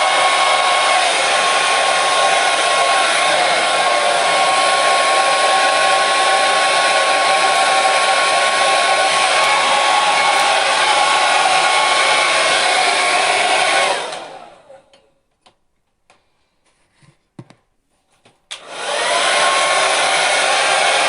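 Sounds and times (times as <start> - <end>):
hair dryer running: 0.0 - 15.0, 18.5 - 21.0.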